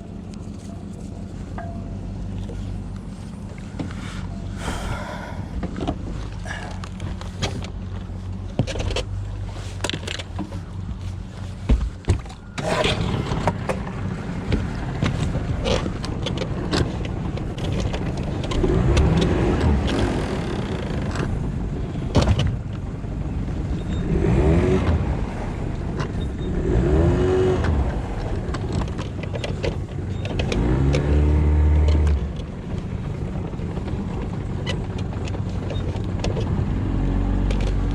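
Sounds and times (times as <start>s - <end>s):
engine revving: 12.6s - 16.8s, 18.4s - 21.4s, 23.8s - 29.1s, 30.2s - 33.9s, 36.2s - 37.9s.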